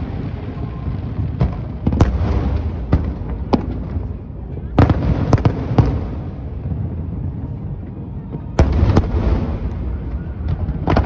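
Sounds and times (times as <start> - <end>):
fireworks bangs: 0.0 - 7.0, 8.6 - 11.0
distant fireworks rumble: 0.0 - 11.0.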